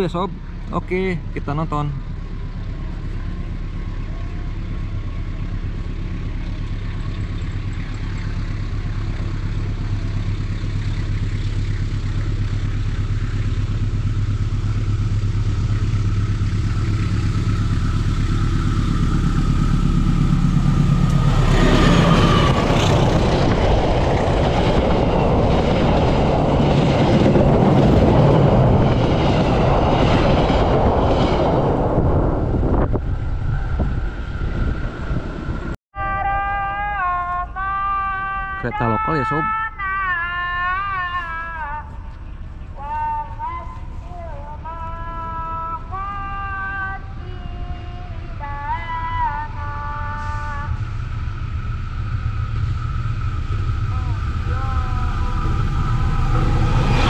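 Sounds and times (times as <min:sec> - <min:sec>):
diesel train engine drone: 0:00.0 - 0:57.0
train wheels rushing past: 0:14.3 - 0:35.8, 0:49.4 - 0:57.0.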